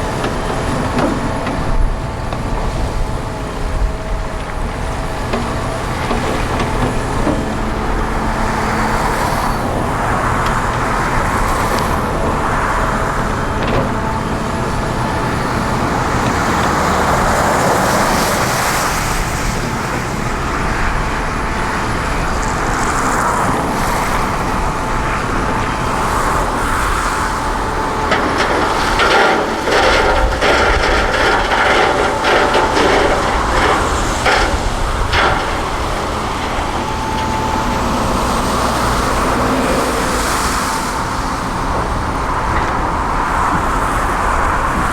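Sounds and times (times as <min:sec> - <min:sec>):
excavator diesel engine with whine: 0:00.0 - 0:44.9
rapid knocks and clatter: 0:25.2 - 0:37.4.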